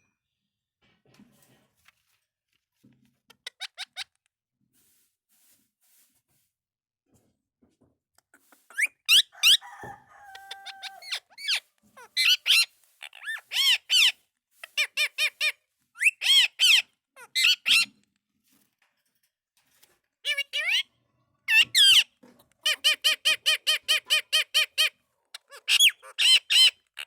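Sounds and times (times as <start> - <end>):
parakeet calling: 8.6 - 9.6, 10.4 - 14.1, 14.8 - 17.9.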